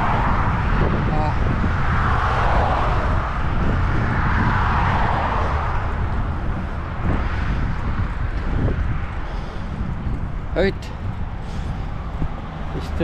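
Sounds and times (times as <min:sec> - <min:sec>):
low traffic rumble: 0:00.0 - 0:13.0
road traffic passing: 0:00.0 - 0:13.0.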